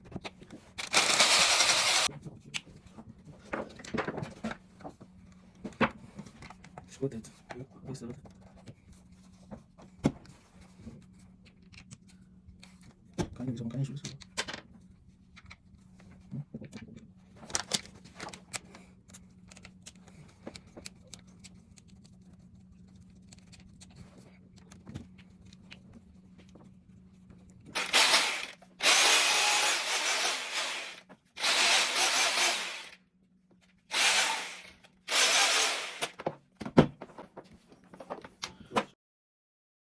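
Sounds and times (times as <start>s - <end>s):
hammer drill running: 0.8s - 2.1s, 27.8s - 33.0s, 33.9s - 36.2s.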